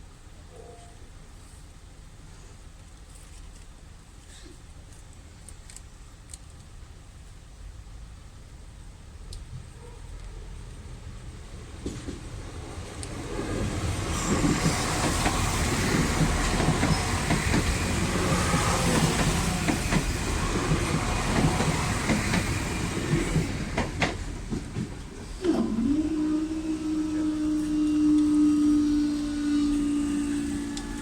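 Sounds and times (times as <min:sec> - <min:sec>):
train wheels clattering: 0:11.8 - 0:25.2.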